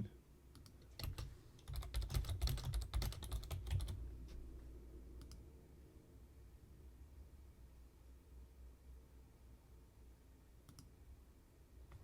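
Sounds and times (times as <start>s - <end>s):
computer keyboard typing: 0.6s - 4.0s.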